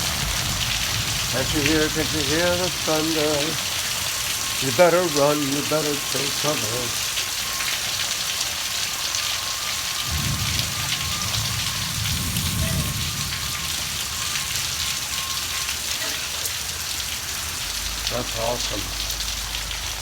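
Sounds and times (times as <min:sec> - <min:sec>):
thunder rumbling: 0:00.0 - 0:06.4, 0:10.0 - 0:15.8
heavy rain falling: 0:00.0 - 0:20.0.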